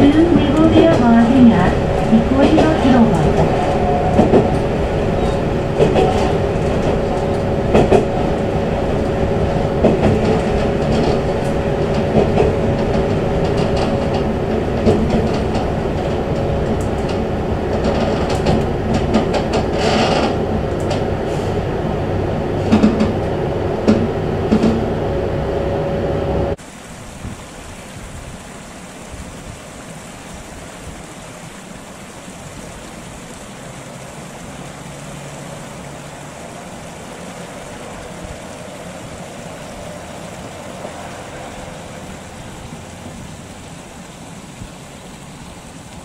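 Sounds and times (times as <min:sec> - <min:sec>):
wheels clicking over rail joints: 0:00.0 - 0:25.2
railcar engine rumble: 0:00.0 - 0:46.0.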